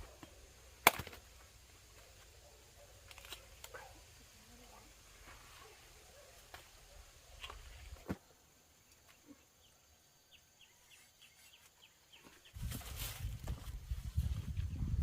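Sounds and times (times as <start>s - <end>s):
low rustling noise: 12.4s - 15.0s.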